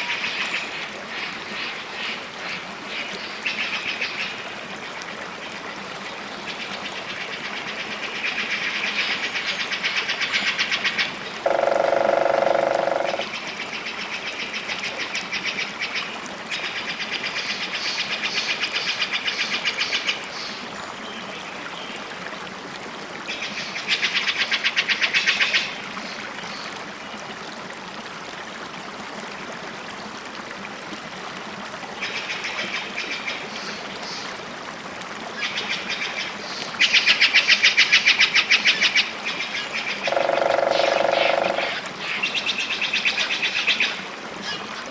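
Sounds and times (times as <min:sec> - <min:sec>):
running water: 0:00.0 - 0:44.9
bird trills: 0:40.0 - 0:41.8
louder lower bird call: 0:40.0 - 0:41.8.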